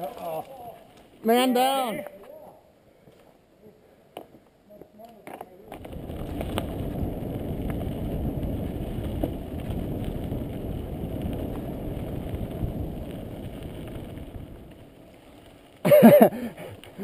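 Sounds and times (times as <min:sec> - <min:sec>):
bike tyre noise: 0:00.0 - 0:17.0
wind rumbling on microphone: 0:05.7 - 0:17.0.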